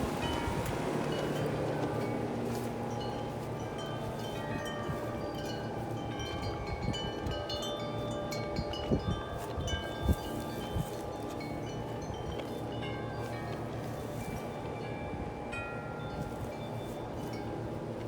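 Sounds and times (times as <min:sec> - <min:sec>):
wind rumbling on microphone: 0:00.0 - 0:12.6
large wind chimes ringing: 0:00.0 - 0:18.0.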